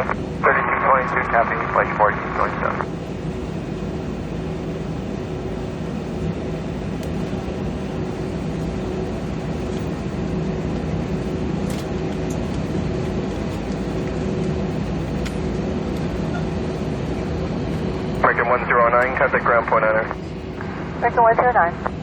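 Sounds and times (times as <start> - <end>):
aircraft engine idle: 0.0 - 21.7.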